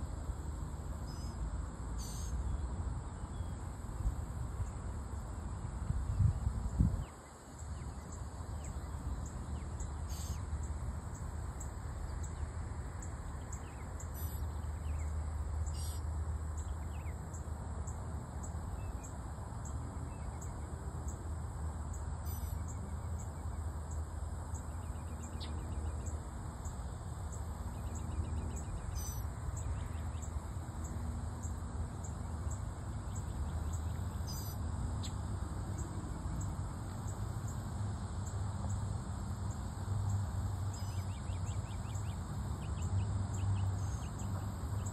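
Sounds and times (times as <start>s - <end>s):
songbirds calling: 0.0s - 44.9s
bird trill: 1.0s - 1.4s, 2.0s - 2.6s, 7.2s - 12.4s, 13.0s - 16.0s, 21.9s - 35.2s, 40.1s - 44.9s.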